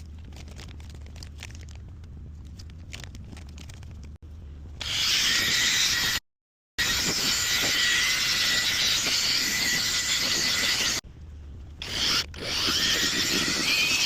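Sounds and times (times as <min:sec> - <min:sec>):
handheld power tool grinding: 0:04.8 - 0:06.2, 0:06.8 - 0:11.0, 0:11.8 - 0:14.0.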